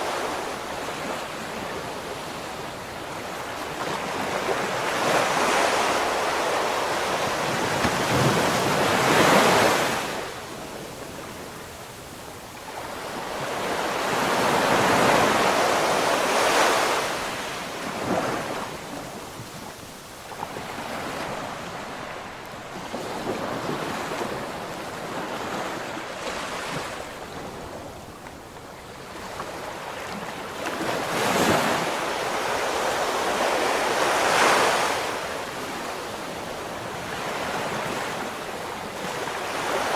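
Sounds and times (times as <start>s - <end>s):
ocean waves breaking: 0.0s - 11.7s, 12.7s - 19.6s.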